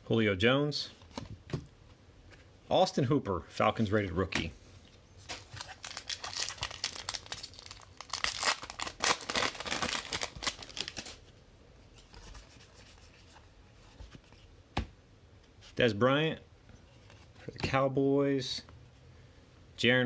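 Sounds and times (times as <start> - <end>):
foil wrapper tearing and crinkling: 5.4 - 11.2.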